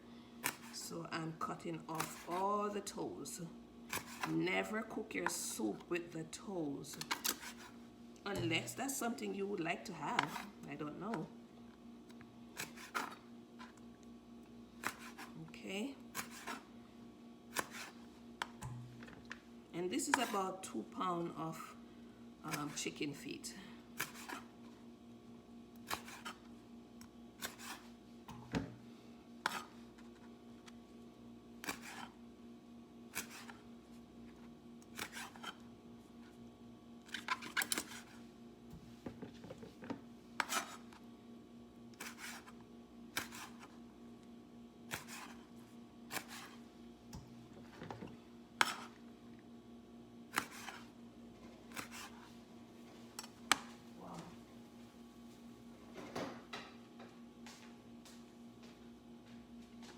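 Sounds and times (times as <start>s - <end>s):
steady low hum: 0.0s - 59.9s
knife chopping on cutting board: 14.8s - 15.4s, 17.5s - 18.0s, 43.2s - 43.7s.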